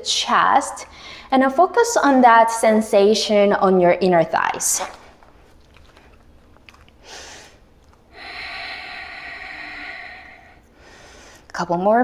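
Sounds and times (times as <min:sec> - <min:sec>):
woman breathing: 0:07.0 - 0:11.5.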